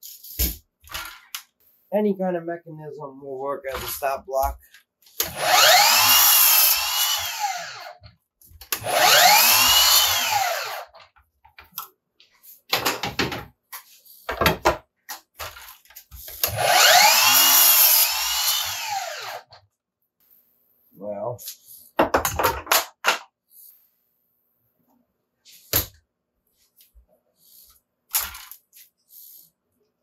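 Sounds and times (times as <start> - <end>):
miter saw motor whining: 5.2 - 8.0, 8.8 - 10.9, 16.5 - 19.4.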